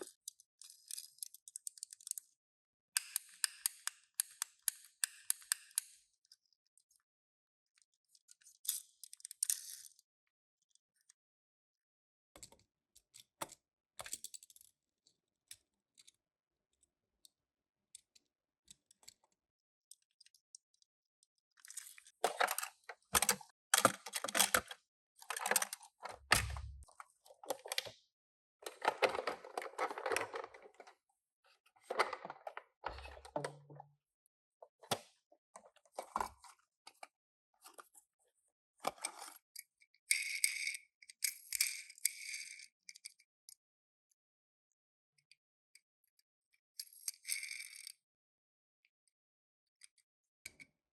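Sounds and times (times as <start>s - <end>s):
packaging crinkling and scraping: 28.6s - 30.9s.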